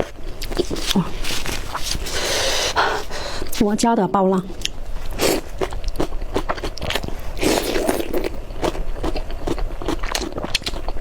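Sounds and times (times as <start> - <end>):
chewing noodles with wet smacks: 5.2 - 11.0.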